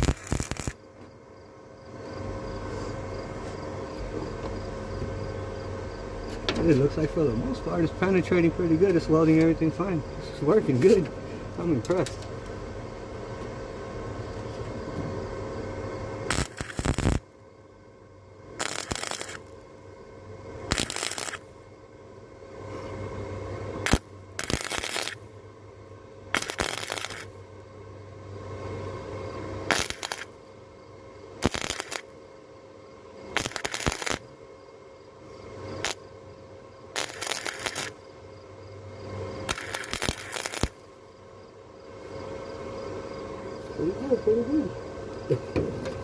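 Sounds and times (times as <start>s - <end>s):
wire welder crackling: 0.0s - 0.9s, 16.2s - 17.3s, 18.5s - 19.9s, 20.6s - 21.6s, 23.8s - 25.3s, 26.3s - 27.7s, 29.6s - 30.4s, 31.4s - 32.2s, 33.3s - 34.3s, 35.8s - 36.1s, 36.9s - 38.2s, 39.4s - 41.0s
welder arc crackling and hissing: 0.0s - 17.6s, 18.4s - 27.9s, 28.5s - 38.4s, 39.0s - 46.0s
low hum: 0.0s - 46.0s.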